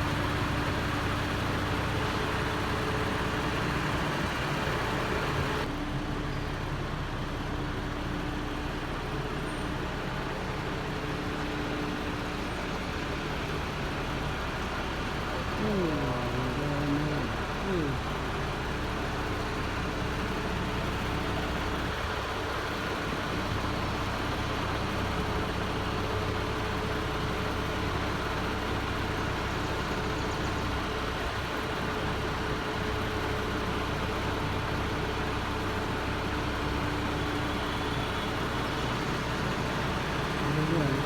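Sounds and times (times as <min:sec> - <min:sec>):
vehicle engine humming: 0:00.0 - 0:41.0.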